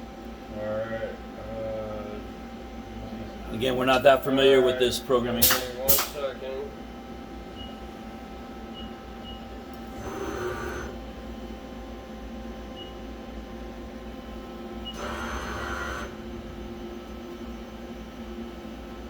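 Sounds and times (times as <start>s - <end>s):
machine humming: 0.0s - 19.0s
machine whirring burst: 5.4s - 6.3s.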